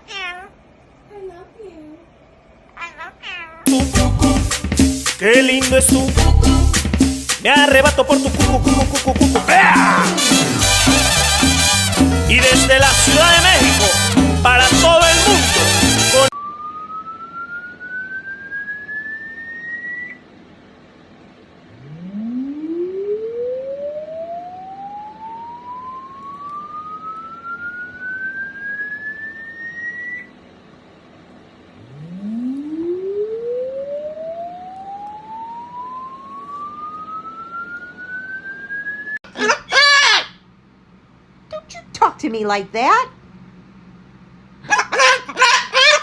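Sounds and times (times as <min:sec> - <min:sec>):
loud short cry: 0:09.4 - 0:10.4, 0:39.3 - 0:40.4
siren-like rising tone: 0:16.3 - 0:20.3, 0:21.7 - 0:30.4, 0:31.8 - 0:39.2.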